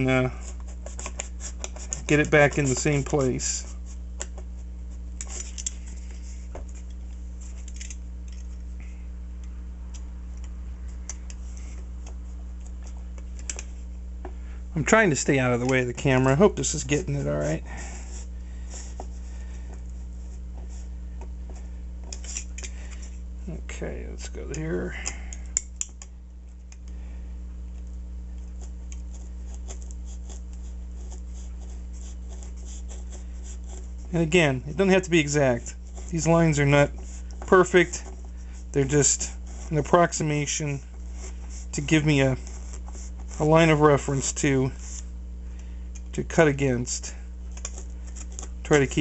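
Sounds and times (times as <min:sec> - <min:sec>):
steady low hum: 0:00.0 - 0:49.0
knife scratching through foam: 0:00.1 - 0:06.0, 0:28.5 - 0:34.2, 0:41.0 - 0:43.5.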